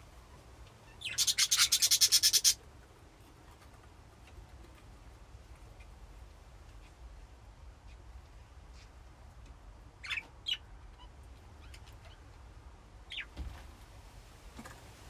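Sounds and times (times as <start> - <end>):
budgies chirping: 0.9 - 2.6, 10.0 - 10.6, 13.1 - 13.3.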